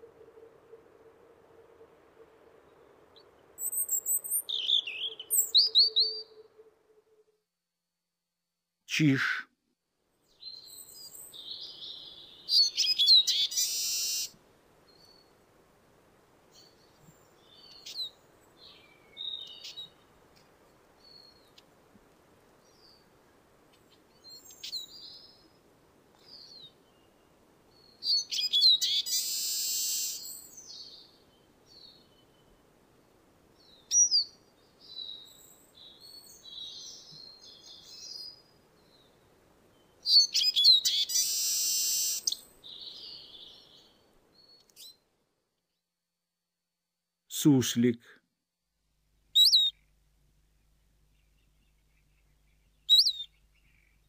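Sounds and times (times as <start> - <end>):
songbird twittering with buzzy wheeze: 49.4 - 49.7, 52.9 - 53.9
short bird chirps: 49.4 - 49.8, 52.0 - 54.0.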